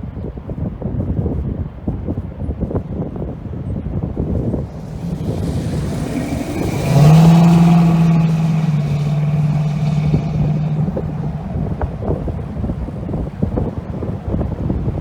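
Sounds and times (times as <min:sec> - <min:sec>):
ship's horn low blast: 0:04.4 - 0:13.2.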